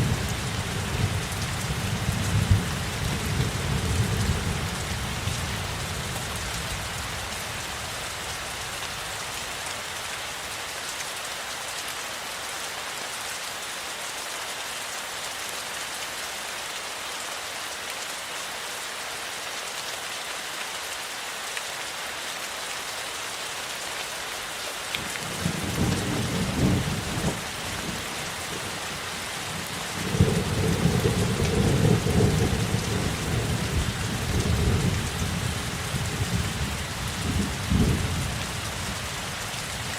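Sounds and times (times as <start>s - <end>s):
steady rain: 0.0s - 39.9s
thunder rumbling: 30.0s - 39.0s.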